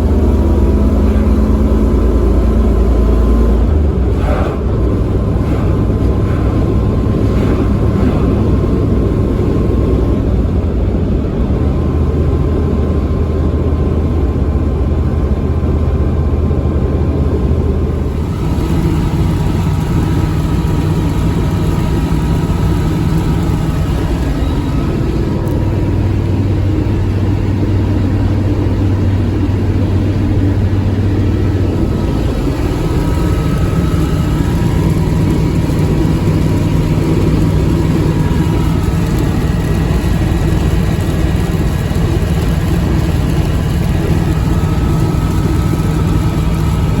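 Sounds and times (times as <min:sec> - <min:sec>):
engine droning under load: 0:00.0 - 0:47.0
road noise: 0:00.0 - 0:47.0.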